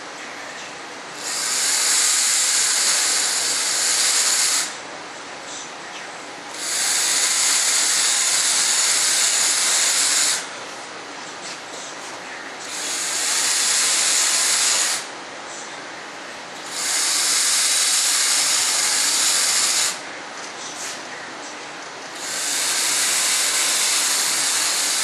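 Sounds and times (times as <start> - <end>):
drill running with loud hiss: 1.1 - 4.9, 6.5 - 10.6, 12.1 - 15.2, 16.6 - 20.1, 22.1 - 25.0.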